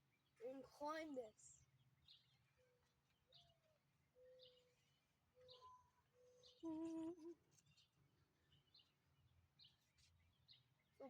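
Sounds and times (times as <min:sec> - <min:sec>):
faint bird chirps: 0:00.4 - 0:09.0
person humming: 0:06.6 - 0:07.4.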